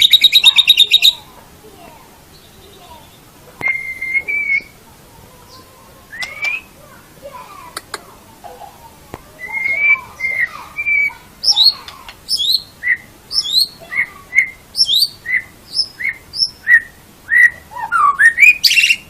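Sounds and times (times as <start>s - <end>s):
bird singing whistled notes: 0.0s - 1.2s, 2.3s - 4.8s, 5.5s - 6.8s, 9.4s - 19.0s.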